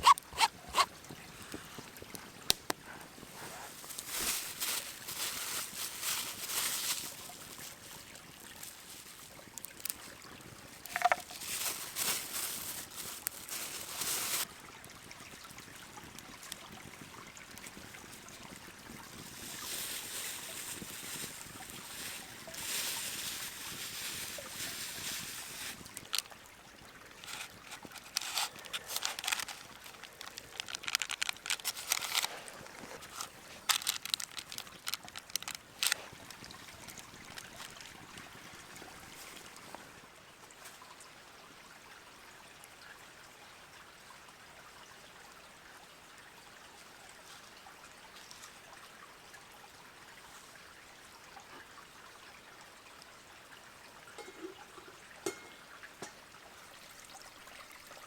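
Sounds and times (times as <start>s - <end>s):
stream trickling: 0.0s - 58.0s
sharp clicks and crackles: 27.2s - 38.0s.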